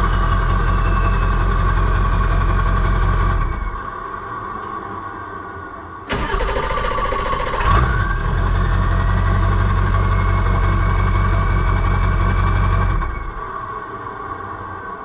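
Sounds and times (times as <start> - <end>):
diesel engine idling: 0.0 - 3.5, 6.1 - 13.3
diesel engine starter cranking: 6.1 - 9.3.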